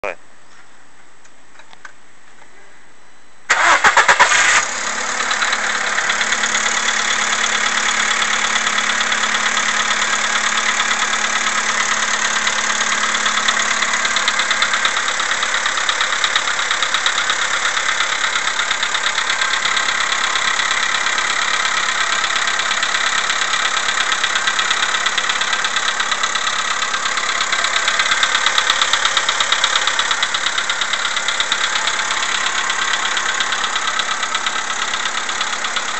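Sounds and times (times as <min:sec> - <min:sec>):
car engine cold start: 0:03.5 - 0:17.9
engine idling with fast knock: 0:05.0 - 0:35.9.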